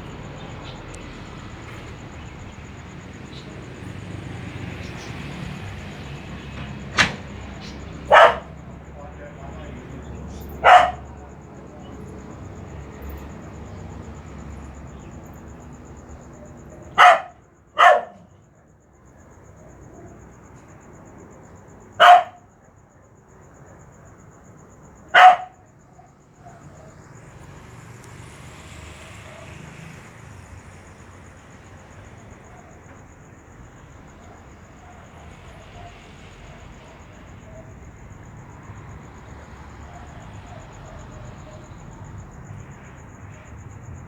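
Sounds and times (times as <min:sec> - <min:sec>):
dog barking: 0:08.0 - 0:08.6, 0:10.3 - 0:11.2, 0:16.7 - 0:18.4, 0:22.0 - 0:22.5, 0:25.1 - 0:27.0, 0:32.4 - 0:32.8, 0:34.2 - 0:37.8, 0:39.8 - 0:41.7.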